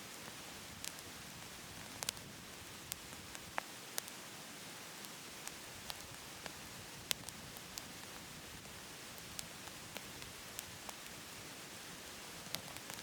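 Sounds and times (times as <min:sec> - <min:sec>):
firewood crackling in stove: 0:00.0 - 0:13.0
steady hiss: 0:00.0 - 0:13.0.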